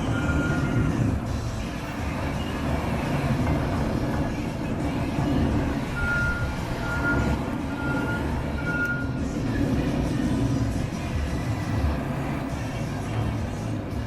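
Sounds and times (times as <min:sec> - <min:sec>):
reversing alarm beeping: 0:00.0 - 0:02.8, 0:05.5 - 0:09.8
tractor engine running: 0:00.0 - 0:14.0.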